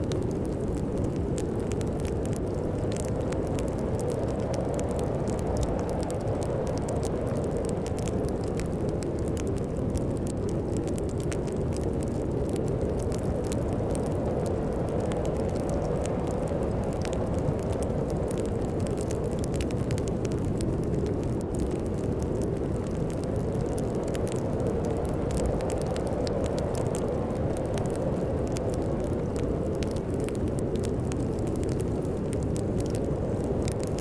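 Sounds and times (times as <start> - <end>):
storm wind rumble: 0.0 - 34.0
wood fire crackling: 0.0 - 34.0.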